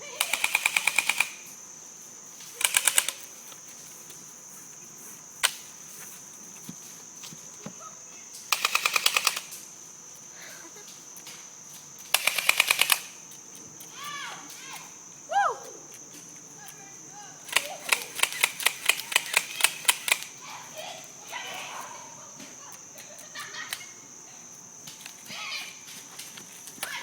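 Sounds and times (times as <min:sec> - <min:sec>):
high insect buzz: 0:00.0 - 0:27.0
airsoft guns firing bursts: 0:00.2 - 0:01.6, 0:02.6 - 0:03.3, 0:08.5 - 0:09.6, 0:12.1 - 0:13.2, 0:17.5 - 0:20.4.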